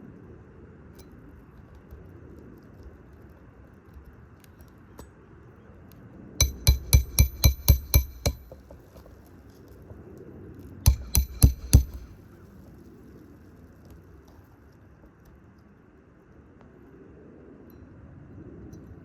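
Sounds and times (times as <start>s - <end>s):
hammer striking metal: 6.4s - 8.8s, 10.9s - 12.1s.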